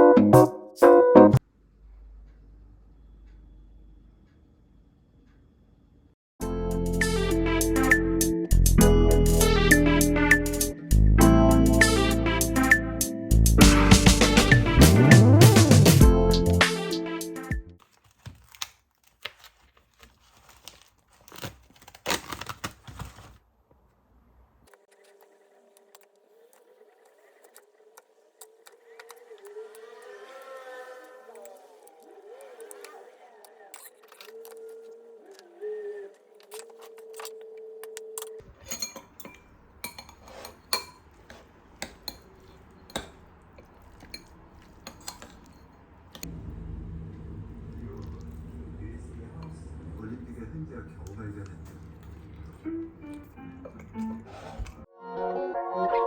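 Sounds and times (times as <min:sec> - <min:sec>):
crinkling and rustling: 0:17.8 - 0:46.4, 0:50.7 - 0:54.9
dishes and cutlery clinking: 0:36.5 - 0:46.3, 0:51.6 - 0:54.8.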